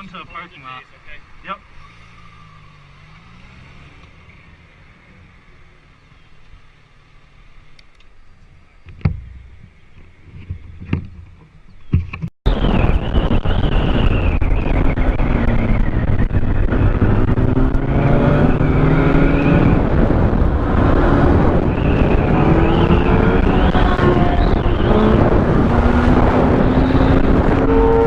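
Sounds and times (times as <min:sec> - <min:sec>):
road noise from moving vehicle: 0:00.0 - 0:28.0
vehicle engine accelerating: 0:01.7 - 0:06.2, 0:12.5 - 0:28.0
wind buffeting microphone: 0:08.9 - 0:28.0.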